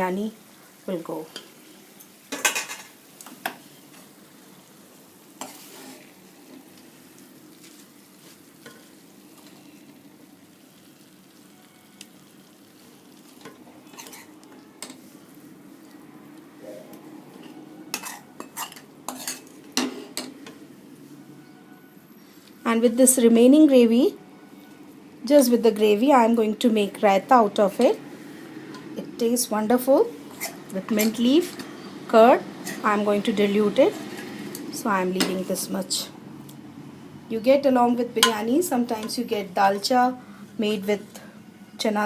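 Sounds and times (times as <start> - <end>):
faint steady hum: 0.0 - 42.0
spoon scraping metal pot: 13.9 - 14.9, 17.4 - 20.3, 30.3 - 31.6.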